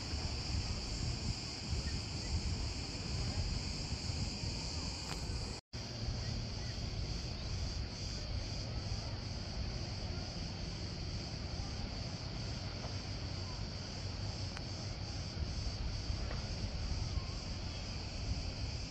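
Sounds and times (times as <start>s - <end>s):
cicadas buzzing: 0.0s - 18.9s.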